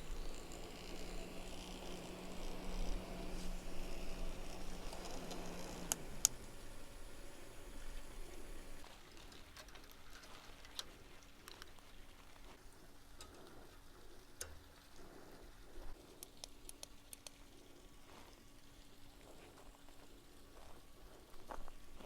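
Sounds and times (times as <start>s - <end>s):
low steady hum: 0.0s - 8.9s
light clicks and taps: 16.2s - 17.4s.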